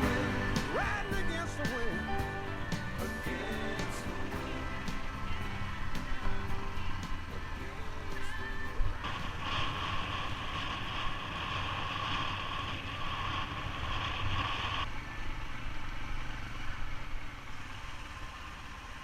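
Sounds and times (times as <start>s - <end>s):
steady high tone: 0.0s - 11.2s
motorbike engine: 0.0s - 19.0s.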